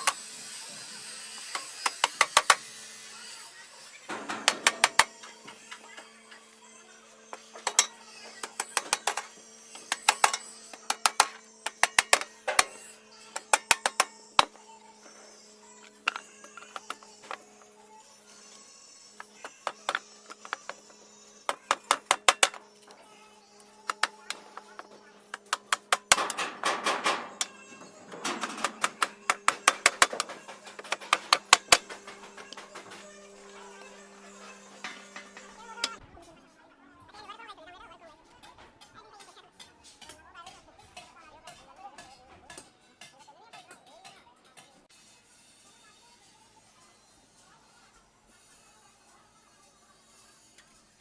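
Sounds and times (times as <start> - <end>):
hammer striking metal: 4.1 - 5.1, 23.8 - 33.1.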